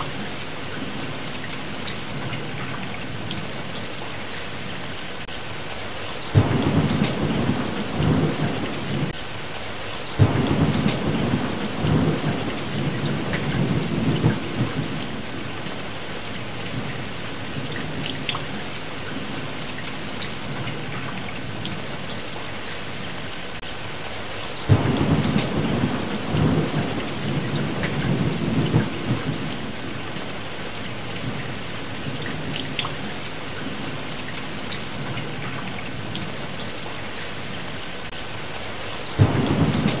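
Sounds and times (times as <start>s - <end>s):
steady rain: 0.0s - 40.0s
rolling thunder: 6.3s - 9.2s, 10.2s - 15.8s, 24.7s - 30.0s, 39.2s - 40.0s.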